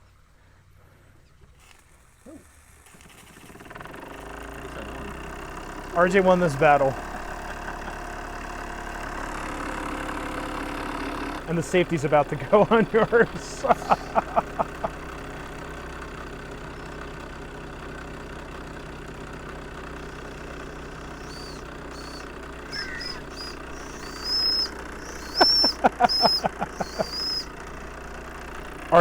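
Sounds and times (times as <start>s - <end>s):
model steam engine hissing: 1.6s - 29.0s
steam whistle toots: 20.2s - 27.5s.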